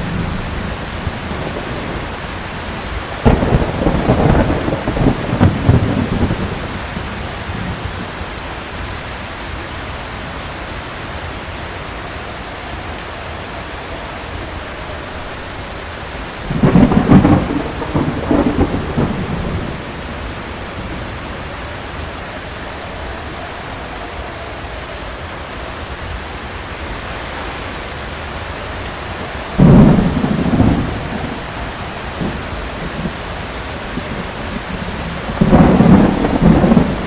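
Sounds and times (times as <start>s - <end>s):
thunder rolling: 0.0s - 9.0s, 14.9s - 24.8s, 28.4s - 37.0s
heavy rain falling: 0.0s - 37.0s.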